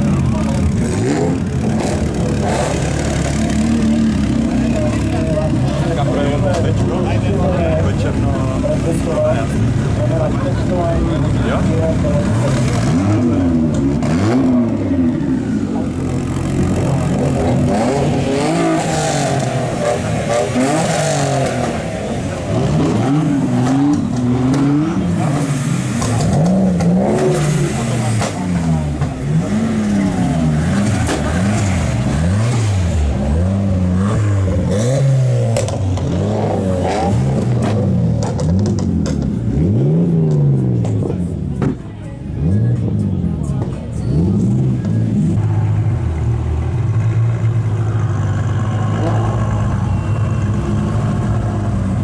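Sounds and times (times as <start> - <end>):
sports car engine revving: 0.0 - 52.0.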